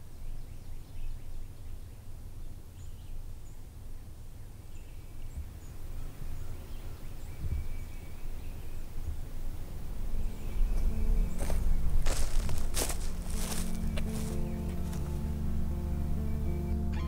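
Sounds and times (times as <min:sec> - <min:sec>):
steady low rumble: 0:08.8 - 0:17.0
bird chirps: 0:10.0 - 0:17.0.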